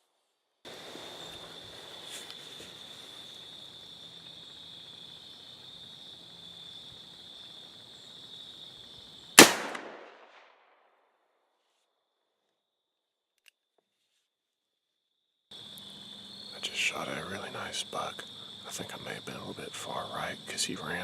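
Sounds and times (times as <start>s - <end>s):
revolver gunshot with echo: 9.4s - 10.4s.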